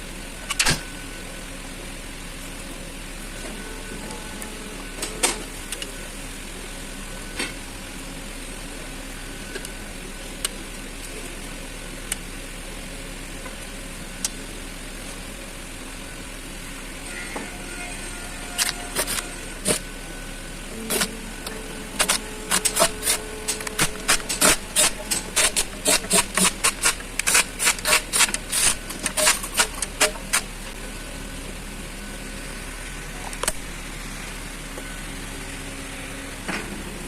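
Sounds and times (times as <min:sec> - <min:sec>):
steady hum: 0:00.0 - 0:37.0
hand ratchet clicking: 0:22.0 - 0:30.5.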